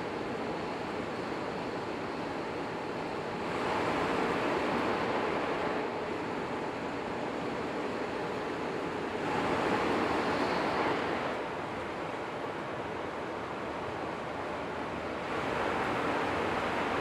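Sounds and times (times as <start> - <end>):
train rushing at speed: 0.0 - 17.0.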